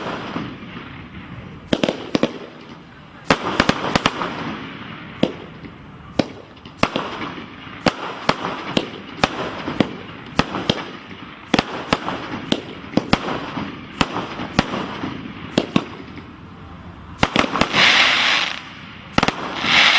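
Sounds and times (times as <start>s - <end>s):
firework bangs: 0.0s - 16.5s, 17.1s - 19.9s
firework crackling hiss: 17.2s - 19.9s.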